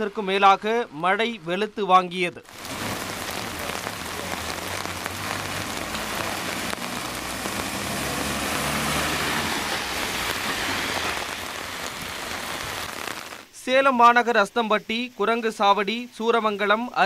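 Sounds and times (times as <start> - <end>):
heavy rain on road: 2.4 - 13.6
passing vehicle engine hum: 2.6 - 12.8.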